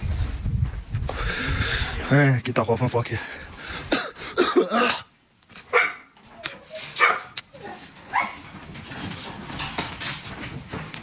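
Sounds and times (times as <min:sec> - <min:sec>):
dog barking: 0:05.7 - 0:06.2, 0:07.0 - 0:07.4, 0:08.1 - 0:08.4.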